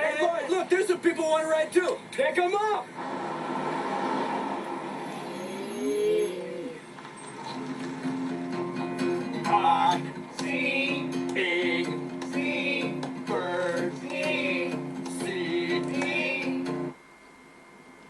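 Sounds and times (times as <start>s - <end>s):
strummed acoustic guitar: 7.5s - 17.0s.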